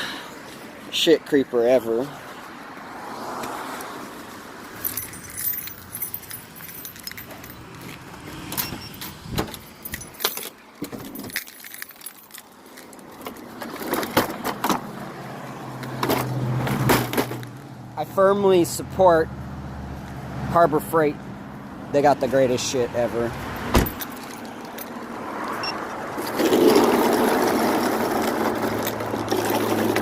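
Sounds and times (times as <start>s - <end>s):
small metal objects clinking: 4.8s - 7.6s, 9.8s - 12.9s.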